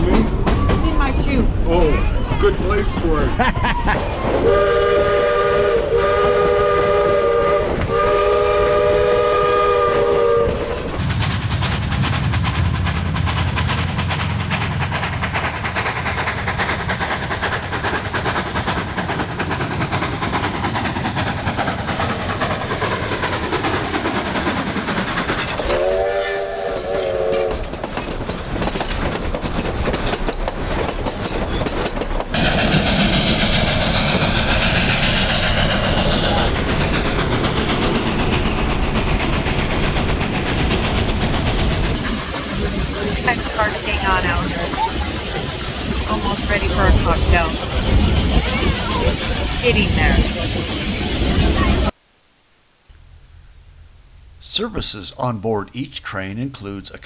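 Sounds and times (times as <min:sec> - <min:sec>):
train running rumble and clatter: 0:00.0 - 0:52.0
steam locomotive whistle: 0:04.4 - 0:10.8, 0:25.6 - 0:27.7, 0:43.0 - 0:44.8.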